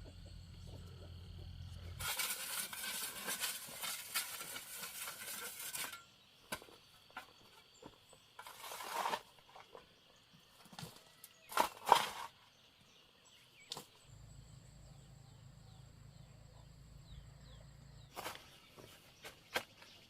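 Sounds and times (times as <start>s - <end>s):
dry rustling and crinkling: 1.9s - 6.0s.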